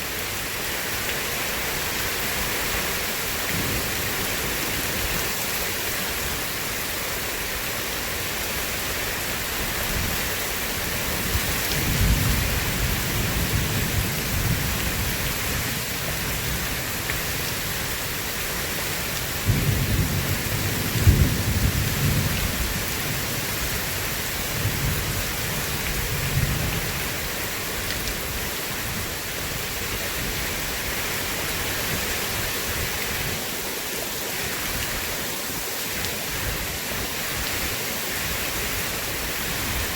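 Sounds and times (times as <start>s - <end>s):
heavy rain: 0.0s - 39.9s
rolling thunder: 19.5s - 23.2s.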